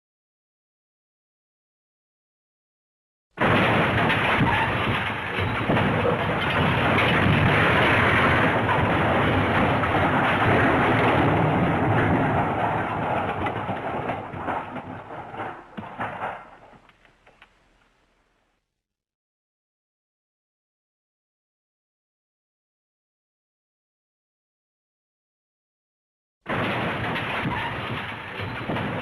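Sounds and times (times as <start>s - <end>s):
scattered rattles and clatters: 3.4s - 17.9s, 26.5s - 29.0s
long clattering crash: 3.4s - 18.3s, 26.5s - 29.0s.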